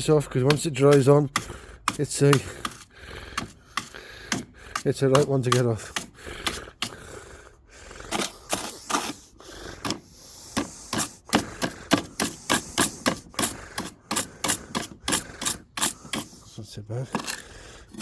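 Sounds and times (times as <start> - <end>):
hand brush scraping: 0.0 - 7.0, 8.1 - 18.0.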